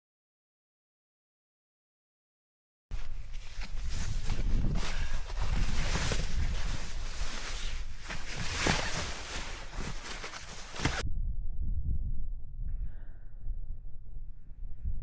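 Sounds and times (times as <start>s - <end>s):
dull low rumble: 3.0s - 15.0s
footsteps on rough ground: 3.1s - 11.0s
wind buffeting microphone: 10.8s - 15.0s.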